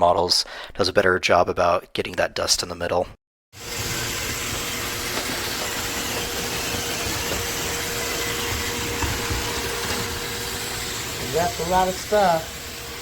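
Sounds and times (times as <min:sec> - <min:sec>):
robot vacuum whirring: 0:03.6 - 0:13.0.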